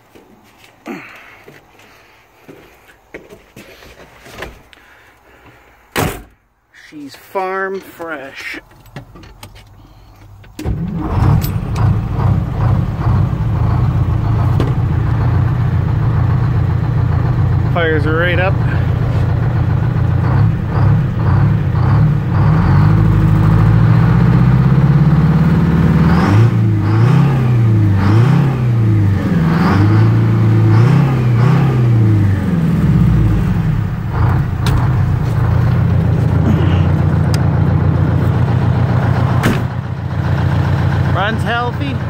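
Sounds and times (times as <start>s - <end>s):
diesel engine revving and idling: 9.8s - 42.0s.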